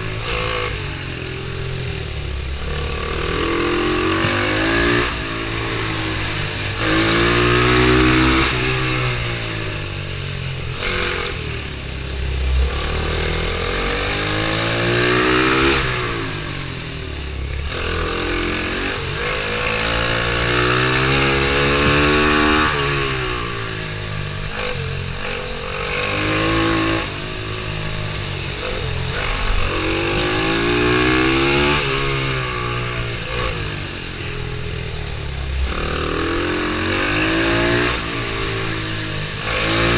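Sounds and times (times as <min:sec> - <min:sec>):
small motorbike engine revving: 0:00.0 - 0:39.9.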